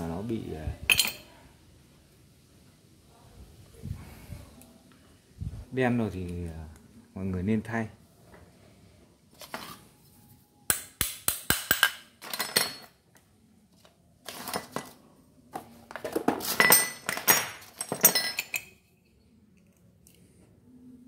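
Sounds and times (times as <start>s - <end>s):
metal tools clinking and clattering: 0.9s - 1.3s, 11.7s - 13.0s, 14.3s - 15.0s, 16.1s - 19.2s.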